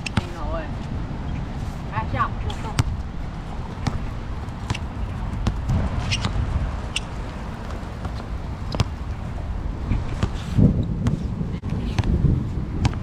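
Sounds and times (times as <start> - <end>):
basketball bouncing: 2.6 - 10.4.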